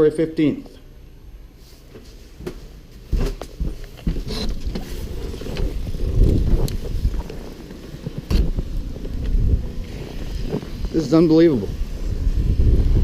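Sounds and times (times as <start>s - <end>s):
wind rumbling on microphone: 4.1s - 13.0s.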